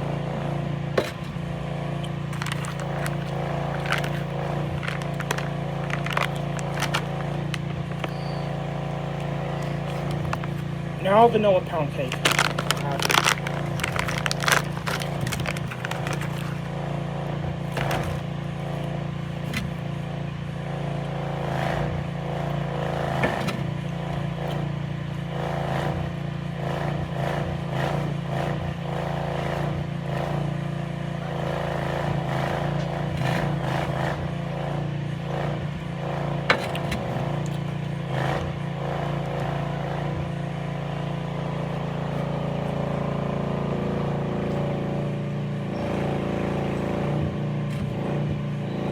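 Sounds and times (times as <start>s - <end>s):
plastic pouch crinkling: 2.3s - 10.8s, 11.8s - 16.7s, 17.6s - 19.6s.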